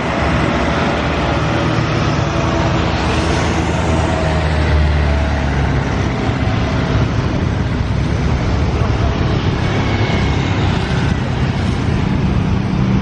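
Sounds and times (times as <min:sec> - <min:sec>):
loud engine rumble: 0:00.0 - 0:13.0.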